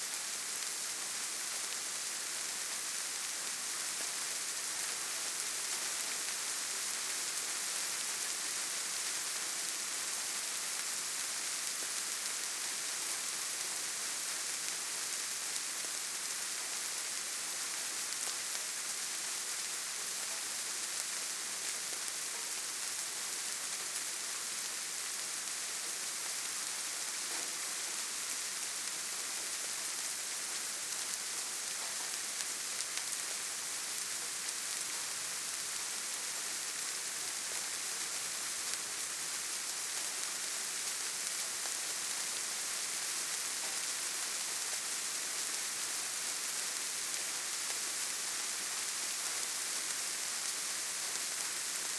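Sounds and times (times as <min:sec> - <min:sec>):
steady rainfall hiss: 0:00.0 - 0:51.9.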